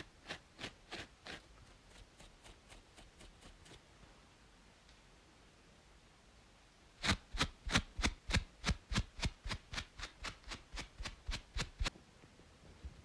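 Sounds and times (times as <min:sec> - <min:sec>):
scratching strokes on braided scalp: 0:00.0 - 0:03.9, 0:07.0 - 0:11.9.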